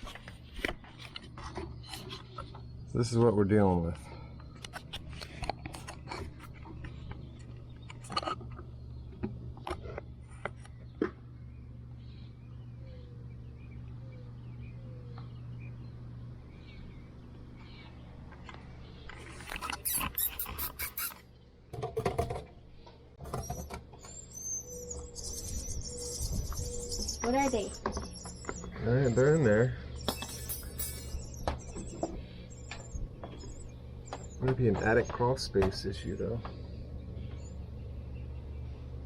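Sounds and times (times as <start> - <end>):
steady low hum: 0.0 - 39.0
nestlings cheeping: 19.1 - 21.4, 23.2 - 38.6.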